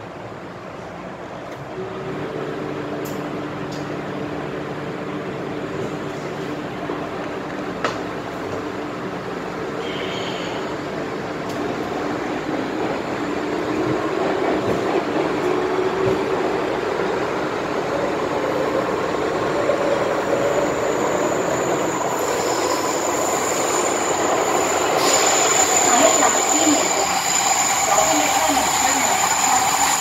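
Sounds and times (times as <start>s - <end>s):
faint train whine: 0.0s - 30.0s
train wheels and air rumbling: 2.9s - 30.0s
thin high whistle: 9.8s - 10.7s.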